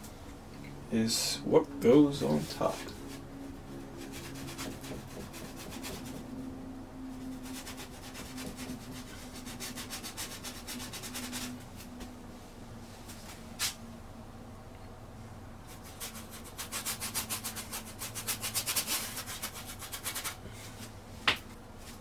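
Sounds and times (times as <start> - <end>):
paintbrush scrubbing on canvas: 2.2 - 6.3, 7.2 - 12.0.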